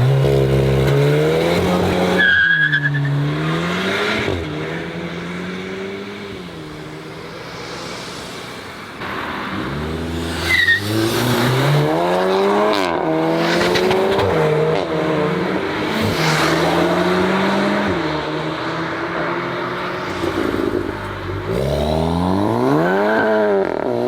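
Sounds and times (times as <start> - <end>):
car engine revving and accelerating: 0.0 - 24.0
tyre squeal: 2.2 - 3.2, 10.4 - 11.2.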